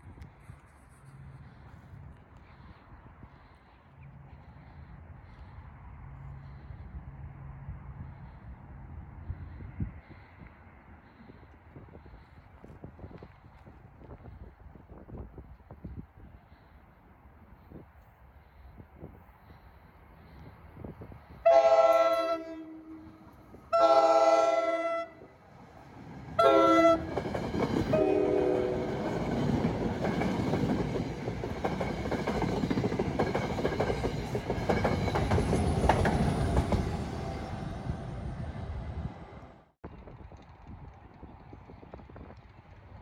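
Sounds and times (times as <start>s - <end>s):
train wheels rumbling on rails: 19.5s - 43.0s
train horn blasts: 21.4s - 25.3s, 26.4s - 27.2s, 27.9s - 29.0s.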